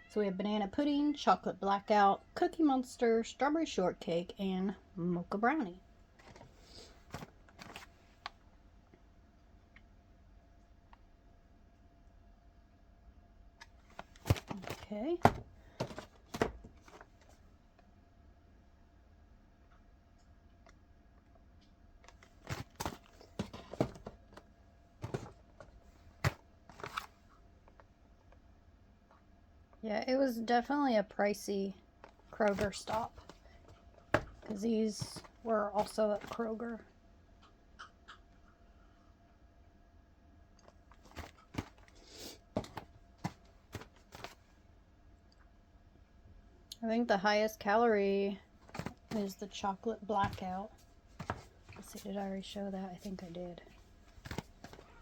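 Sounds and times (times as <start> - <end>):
cardboard boxes tapping and rustling: 6.2 - 7.9, 13.9 - 17.3, 22.2 - 24.4, 25.0 - 27.1, 32.0 - 36.5, 41.0 - 42.0, 42.6 - 44.4, 48.6 - 55.0
packaging rustle: 13.9 - 17.2, 22.1 - 24.2.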